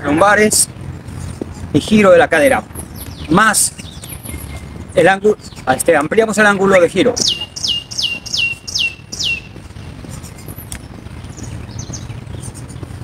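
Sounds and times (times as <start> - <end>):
bird whistling high notes: 7.2 - 9.5
faint high bird chirps: 7.2 - 9.6.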